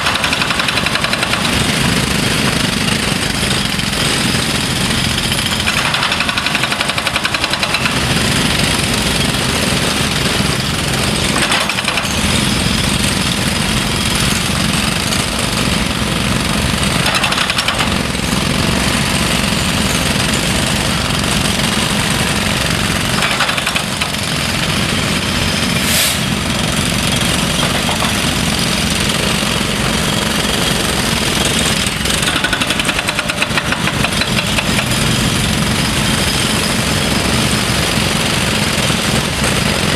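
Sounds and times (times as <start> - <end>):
diesel engine running: 17.8 - 39.9.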